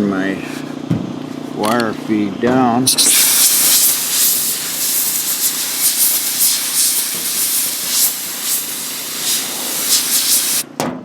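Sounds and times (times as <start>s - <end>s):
welder sizzling hiss: 2.9s - 10.6s.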